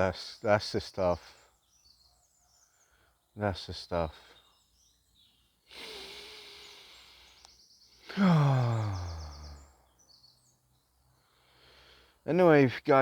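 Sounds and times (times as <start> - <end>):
faint birds chirping: 0.0 - 13.0
man sighing: 5.7 - 6.9, 8.0 - 9.8
man breathing in: 5.7 - 9.7, 11.2 - 12.2.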